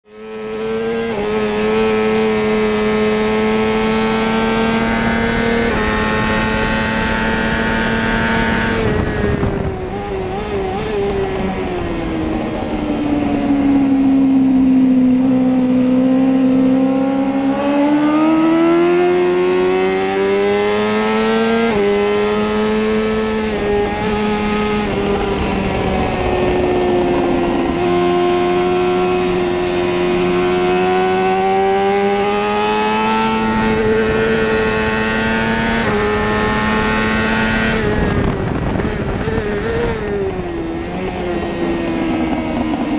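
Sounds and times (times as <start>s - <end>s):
motorcycle engine revving: 0.0s - 42.9s
wind rushing past microphone: 0.2s - 42.9s.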